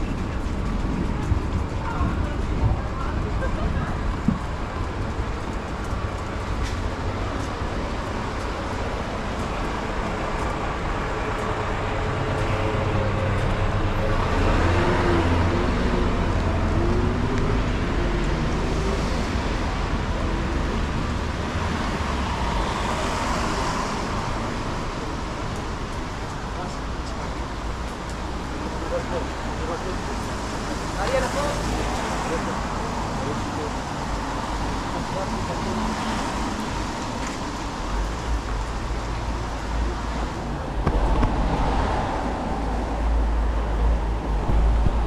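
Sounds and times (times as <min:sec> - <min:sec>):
passing cars rumble: 0:00.0 - 0:45.0.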